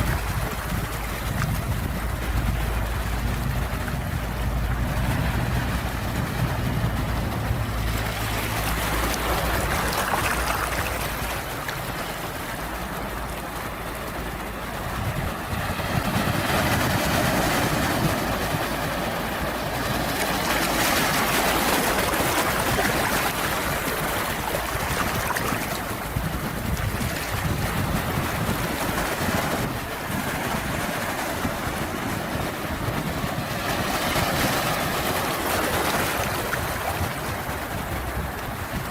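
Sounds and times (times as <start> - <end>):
low rumble: 0.0 - 11.3
sea waves washing in: 0.0 - 38.9.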